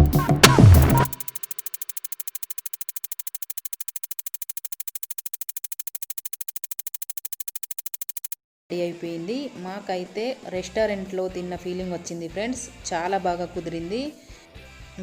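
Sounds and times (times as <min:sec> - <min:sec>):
fast pulsing background music: 0:00.0 - 0:08.2.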